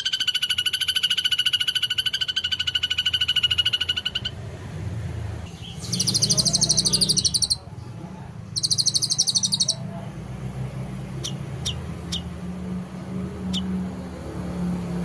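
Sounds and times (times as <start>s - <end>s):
bird chirps sweeping downward: 0.0s - 4.4s, 5.5s - 7.6s, 8.5s - 9.8s, 11.2s - 12.3s
songbird rattling call: 0.0s - 4.4s, 5.5s - 7.6s, 8.5s - 9.8s, 11.2s - 12.3s.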